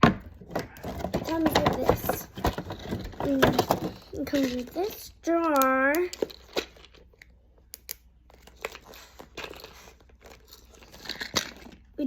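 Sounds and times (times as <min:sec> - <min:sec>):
plastic packaging crinkling: 0:08.3 - 0:12.0.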